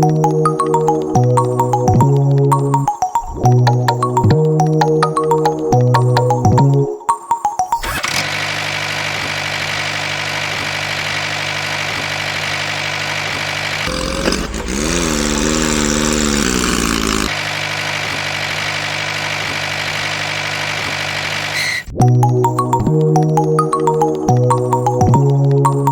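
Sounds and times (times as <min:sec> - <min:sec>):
small tractor motor running: 0:07.8 - 0:22.0.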